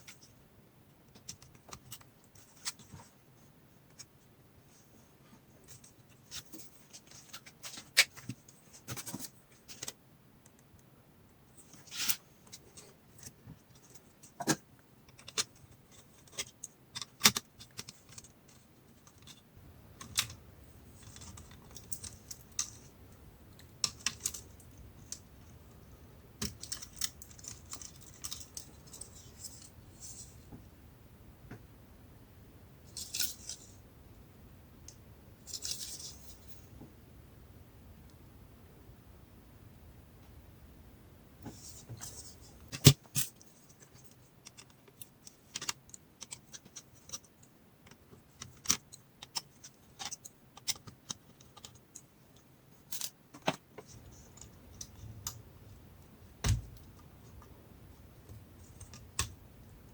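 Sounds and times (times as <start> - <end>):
faint low hum: 0.0 - 59.9
small parts and tools clicking: 23.5 - 25.3, 42.0 - 55.4.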